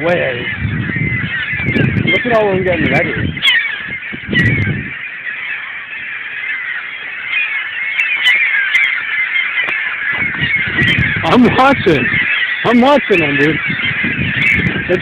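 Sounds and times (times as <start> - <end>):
flock of seagulls calling: 0.0 - 15.0.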